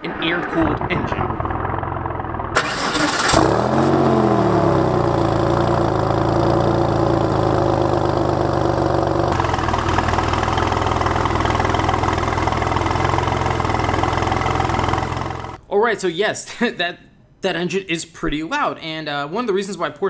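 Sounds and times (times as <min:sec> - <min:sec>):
car engine idling: 0:00.1 - 0:15.6.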